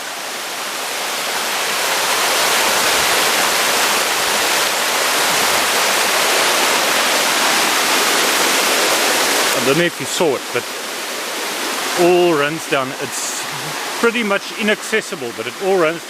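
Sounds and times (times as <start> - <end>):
stream water rushing over a drop: 0.0 - 16.0.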